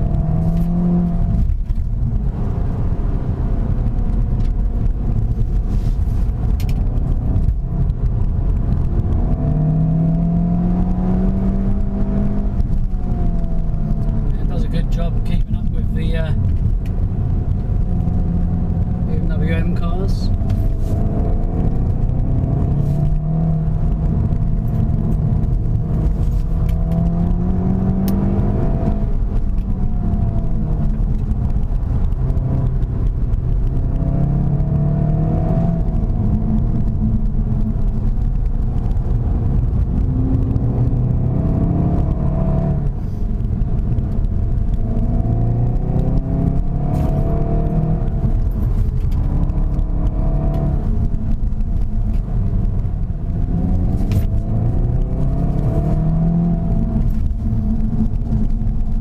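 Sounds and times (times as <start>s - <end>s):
car engine accelerating: 0.0s - 59.0s
road and tyre noise: 0.0s - 59.0s.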